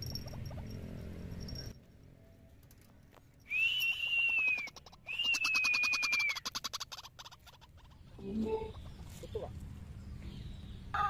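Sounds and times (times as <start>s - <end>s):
bird calling with buzzing pulse: 3.5s - 8.8s.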